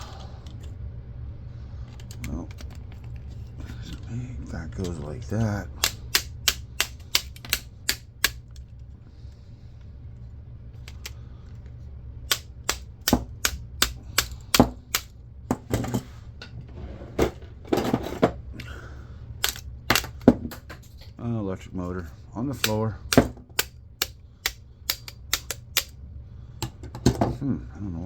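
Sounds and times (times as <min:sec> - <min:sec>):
clicks and taps of small parts: 0:04.8 - 0:08.8, 0:19.4 - 0:21.1, 0:22.6 - 0:25.9.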